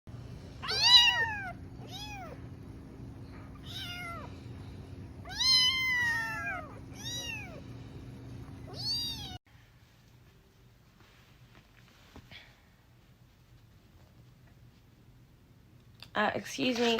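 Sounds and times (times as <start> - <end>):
cat meowing: 0.6 - 2.4, 3.6 - 4.3, 5.2 - 7.6, 8.7 - 9.4.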